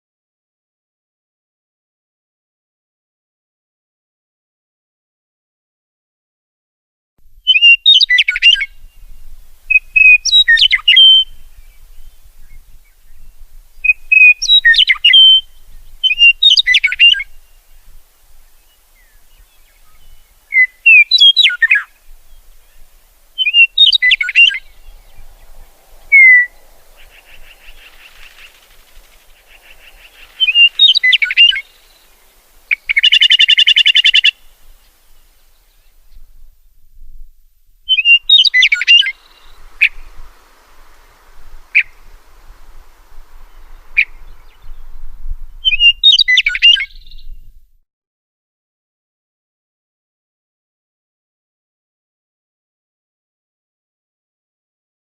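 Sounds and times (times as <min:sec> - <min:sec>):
songbird whistled phrases: 0:07.4 - 0:09.0, 0:09.7 - 0:12.6, 0:13.8 - 0:17.4, 0:19.0 - 0:22.4, 0:23.4 - 0:28.8, 0:29.4 - 0:34.5, 0:37.9 - 0:40.1, 0:41.7 - 0:42.0, 0:45.6 - 0:47.4.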